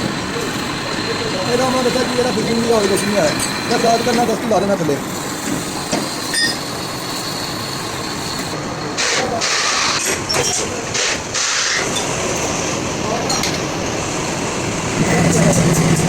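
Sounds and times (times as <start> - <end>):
steady mechanical rumble: 0.0 - 16.0
hissing air bursts: 10.9 - 11.9.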